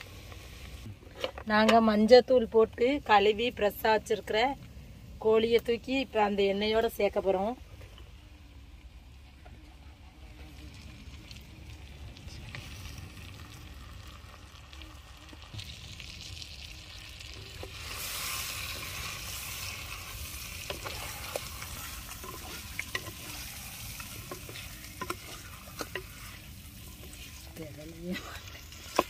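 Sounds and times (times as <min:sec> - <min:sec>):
chicken sizzling in hot oil: 0:09.9 - 0:29.0
utensil scraping a pan: 0:17.3 - 0:29.0.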